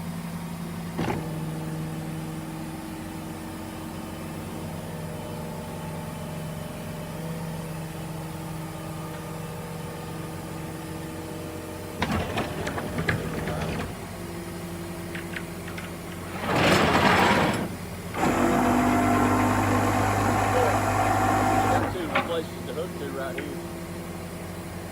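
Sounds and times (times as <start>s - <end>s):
vehicle engine idling: 19.2s - 24.9s.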